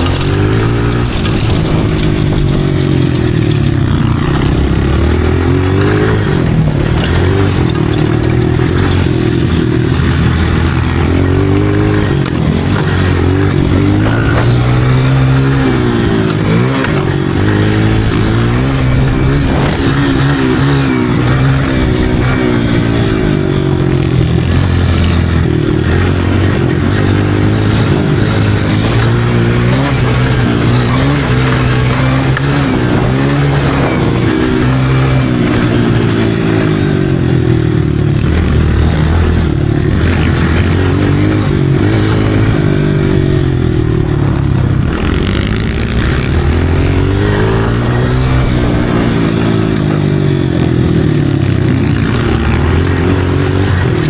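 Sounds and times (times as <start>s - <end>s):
dirt bike engine: 0.0s - 54.0s.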